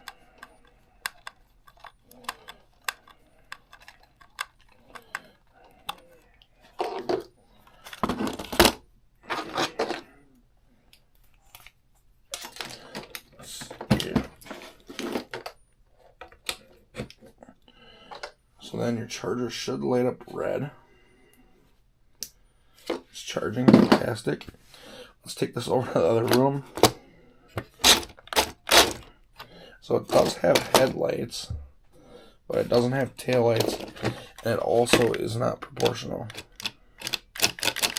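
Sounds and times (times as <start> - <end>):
plastic clicks and rattles: 0.0 - 8.8, 33.2 - 37.9
scraping handling noises: 0.0 - 10.2, 12.4 - 17.4, 26.0 - 31.0, 32.5 - 37.9.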